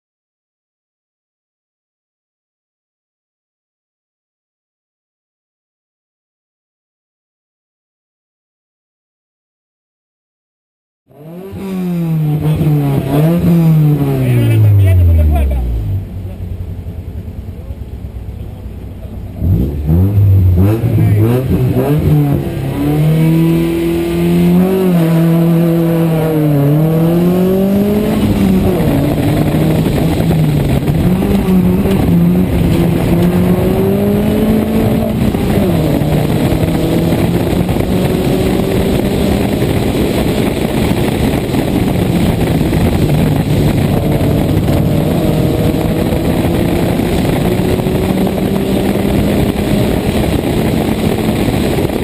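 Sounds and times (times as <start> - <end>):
rally car engine revving: 11.1 - 52.0.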